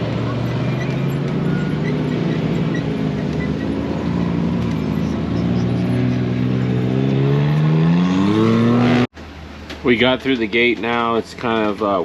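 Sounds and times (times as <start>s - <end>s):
motorhome engine running: 0.0s - 8.1s.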